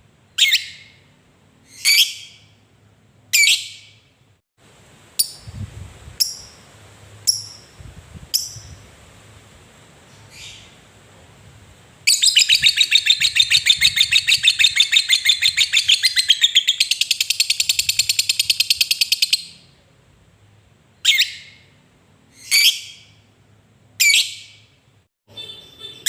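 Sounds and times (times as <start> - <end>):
sharp bird chirp: 0.3 - 1.1, 1.7 - 2.6, 12.1 - 19.7
lovebird chattering trill: 12.1 - 19.6.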